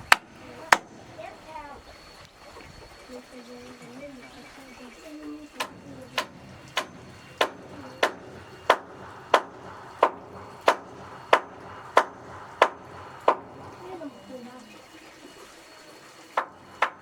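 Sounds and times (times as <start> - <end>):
hammering on wood: 0.0 - 1.4, 5.6 - 14.2, 16.3 - 17.0.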